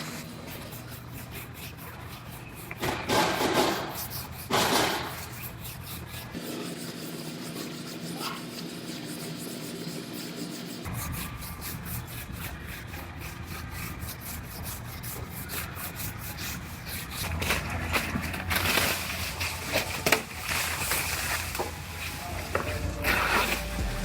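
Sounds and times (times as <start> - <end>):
hand sanding a car panel: 0.0 - 18.3.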